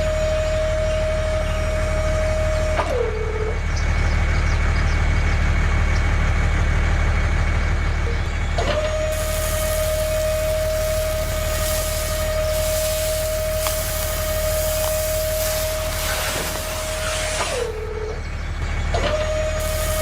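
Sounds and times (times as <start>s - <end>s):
small electric motor whine: 8.9s - 18.3s, 19.1s - 20.0s
low hum: 9.1s - 20.0s.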